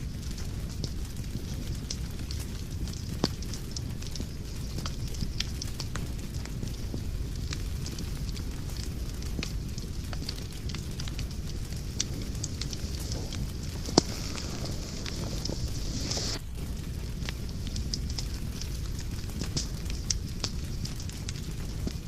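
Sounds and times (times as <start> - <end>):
wood fire crackling and popping: 0.0 - 22.0
low rumble: 5.3 - 22.0.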